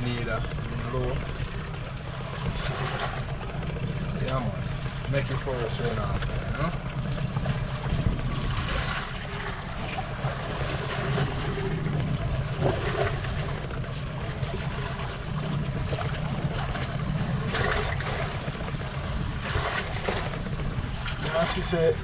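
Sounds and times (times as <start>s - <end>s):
boat engine idling: 0.0s - 22.0s
water splashing around hull: 0.0s - 22.0s.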